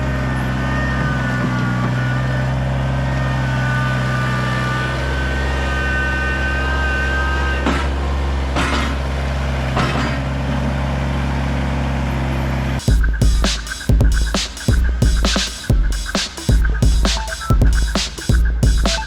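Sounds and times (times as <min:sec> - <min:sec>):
tractor diesel engine running: 0:00.0 - 0:19.0
high whine: 0:12.8 - 0:19.0.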